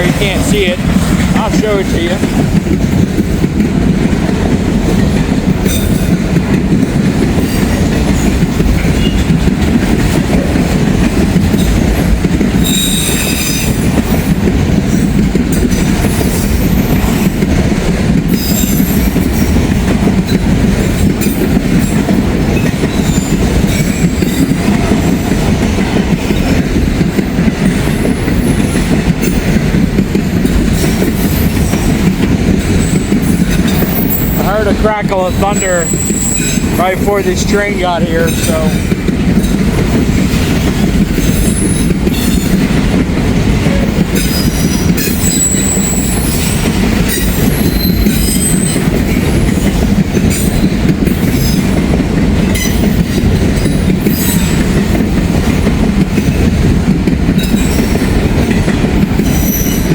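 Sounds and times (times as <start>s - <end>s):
freight train wheels clacking: 0.0s - 59.9s
high wheel squeal: 35.5s - 36.6s.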